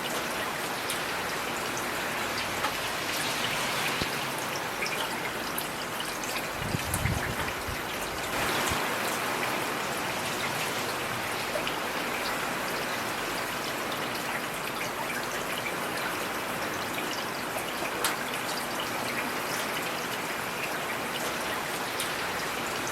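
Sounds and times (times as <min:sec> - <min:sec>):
heavy rain hissing: 0:01.2 - 0:04.8, 0:06.4 - 0:11.5.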